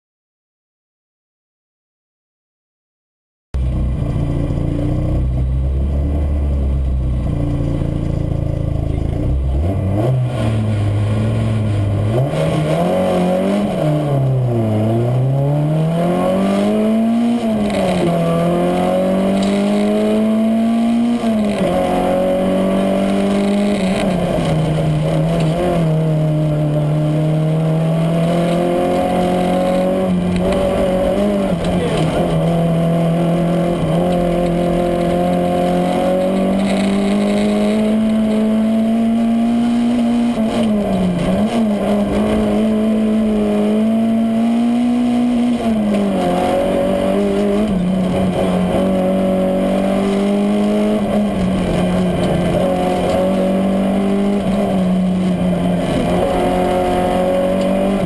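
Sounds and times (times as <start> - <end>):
car engine accelerating through gears: 3.6 - 58.0.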